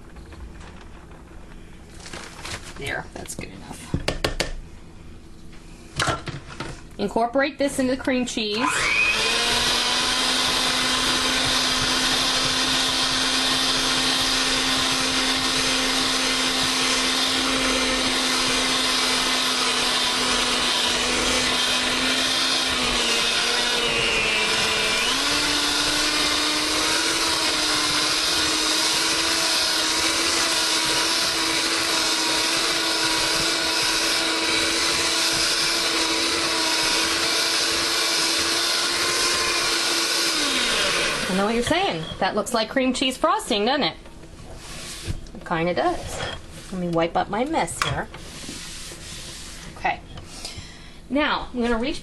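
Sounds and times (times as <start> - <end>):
electric mixer running: 8.4 - 42.0.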